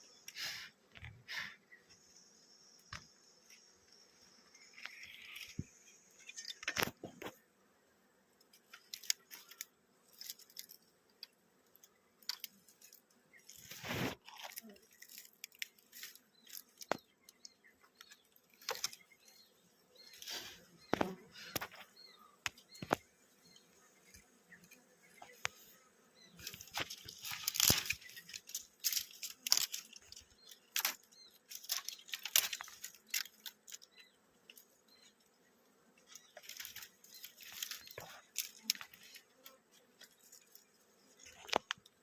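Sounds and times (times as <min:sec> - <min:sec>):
rustling and crackling: 0:11.8 - 0:35.2, 0:36.0 - 0:42.0.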